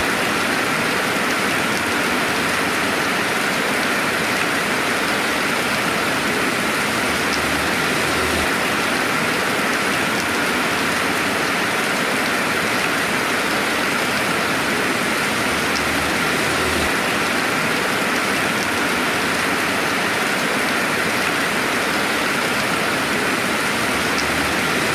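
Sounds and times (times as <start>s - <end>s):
steady rain hiss: 0.0s - 24.9s
faint raindrop ticks: 15.5s - 16.0s, 24.0s - 24.4s.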